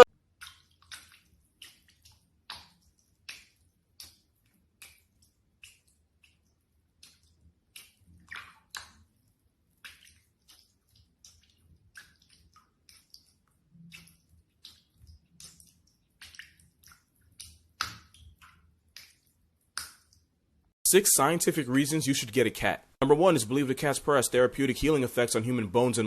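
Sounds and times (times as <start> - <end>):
water dripping: 0.0 - 20.7.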